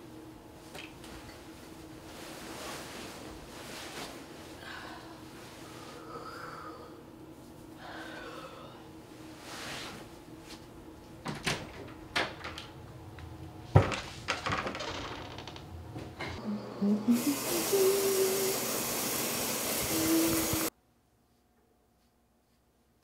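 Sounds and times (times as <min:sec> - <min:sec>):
pipe whine: 0:15.6 - 0:20.7
water running: 0:16.4 - 0:20.7.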